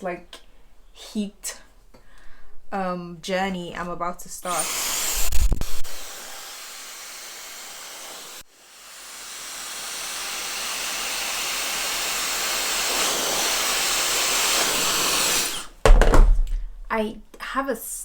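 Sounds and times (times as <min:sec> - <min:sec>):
hair dryer blowing air: 0:04.4 - 0:15.8.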